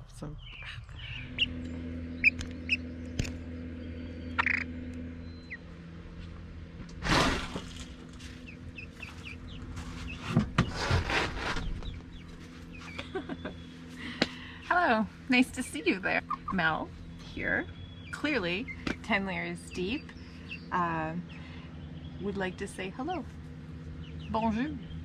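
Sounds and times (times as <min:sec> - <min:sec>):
low steady hum: 0:00.0 - 0:25.0
chickens clucking: 0:04.3 - 0:04.8, 0:08.3 - 0:14.3, 0:15.6 - 0:16.9.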